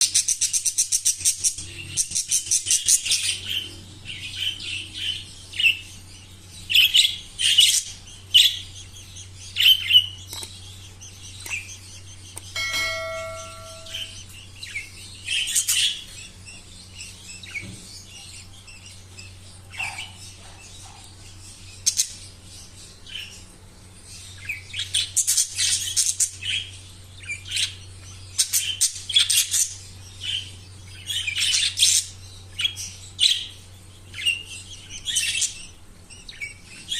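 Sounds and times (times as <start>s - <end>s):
parrots chirping and squawking: 0.2s - 23.5s, 24.1s - 36.9s
bell-like ringing tone: 12.6s - 14.3s
low hum: 12.6s - 14.3s.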